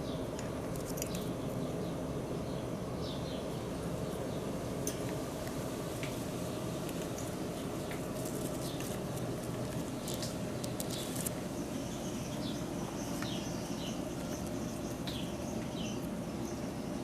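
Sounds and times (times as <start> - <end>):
outdoor background noise: 0.0 - 17.0
high falling bird chirps: 9.9 - 17.0.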